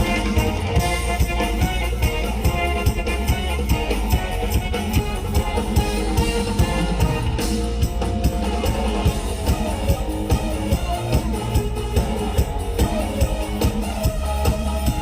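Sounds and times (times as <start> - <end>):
drum kit steady beat: 0.0 - 15.0.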